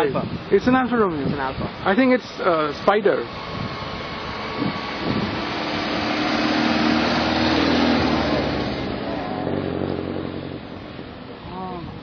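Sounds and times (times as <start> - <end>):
car engine driving past: 3.3 - 11.4.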